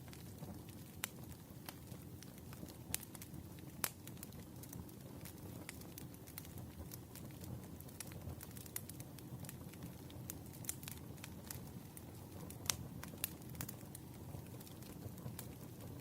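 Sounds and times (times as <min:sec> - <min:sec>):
campfire crackling and popping: 0:00.0 - 0:16.0
low fire rumble: 0:00.0 - 0:16.0.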